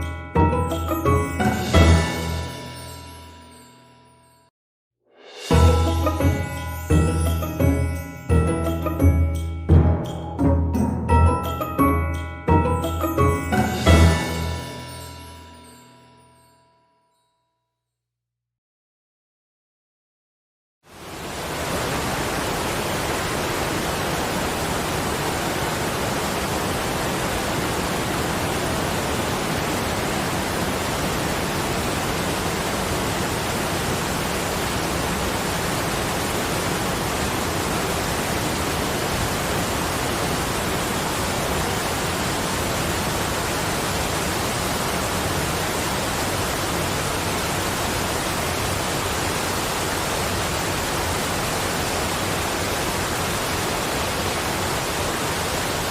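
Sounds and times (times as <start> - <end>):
falling water hiss: 20.9 - 55.9.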